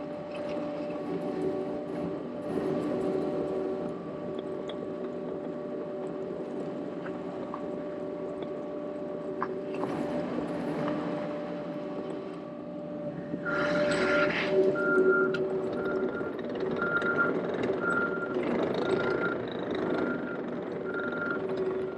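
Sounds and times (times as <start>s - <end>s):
skid steer loader engine whine: 0.0s - 21.9s
rush of machine noise: 13.1s - 17.6s
reversing beep: 13.4s - 21.9s.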